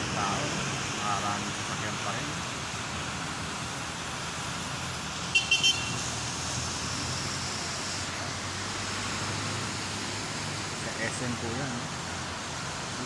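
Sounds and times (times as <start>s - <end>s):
rain: 0.0s - 13.0s
traffic noise: 0.0s - 13.0s
vehicle horn beeps: 5.4s - 6.0s.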